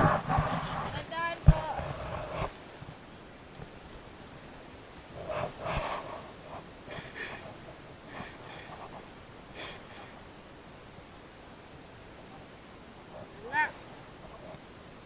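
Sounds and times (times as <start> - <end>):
low background hiss: 0.0 - 15.0
person breathing hard: 5.2 - 10.2.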